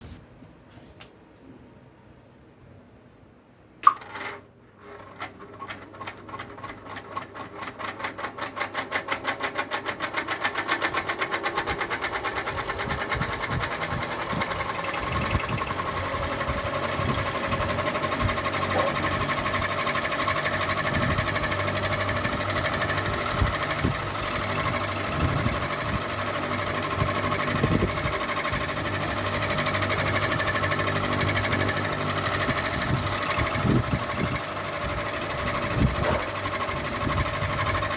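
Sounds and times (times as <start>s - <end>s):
ceiling fan ticking and humming: 0.0s - 37.9s
ceiling fan switch click: 3.8s - 4.0s.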